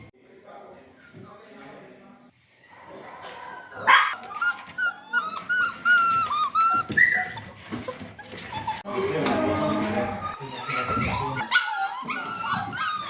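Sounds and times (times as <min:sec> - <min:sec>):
dogs yelping and whining: 0:02.7 - 0:13.0
dog barking: 0:03.8 - 0:04.2.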